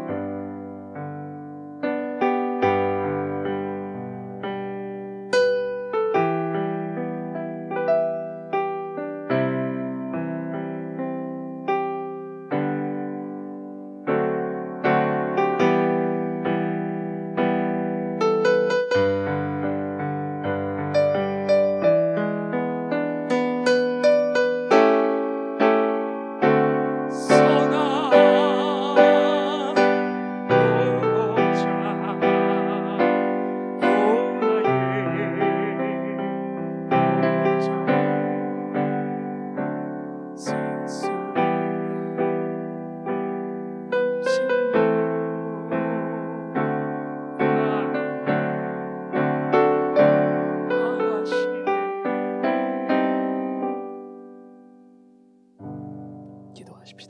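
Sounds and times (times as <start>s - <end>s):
keyboard chords and melody: 0.0s - 57.0s
held line with vibrato: 27.1s - 36.3s.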